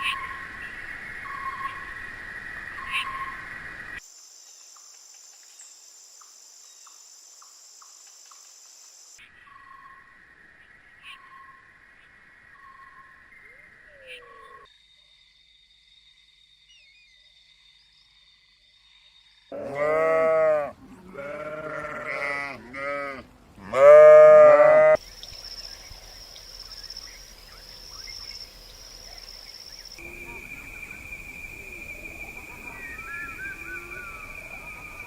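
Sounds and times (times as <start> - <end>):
farm animal bleating: 19.5 - 25.0.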